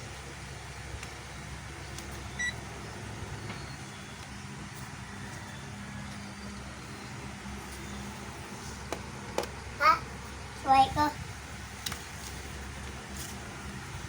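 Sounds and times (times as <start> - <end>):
steady low hum: 0.0 - 14.0
electrical tester beep: 2.3 - 2.6.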